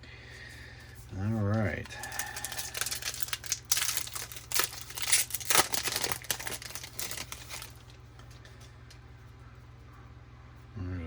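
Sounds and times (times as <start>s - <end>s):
foil wrapper tearing and crinkling: 1.4s - 8.0s.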